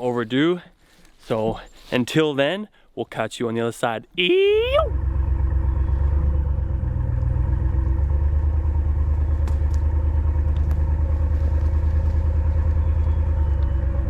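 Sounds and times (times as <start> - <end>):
vehicle engine running: 4.7 - 14.0.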